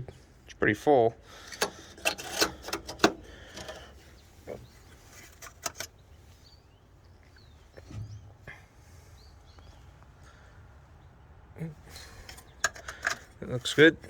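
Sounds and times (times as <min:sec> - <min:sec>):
parts clicking and knocking: 0:01.3 - 0:06.0, 0:12.2 - 0:13.6
faint bird chirps: 0:03.4 - 0:13.0.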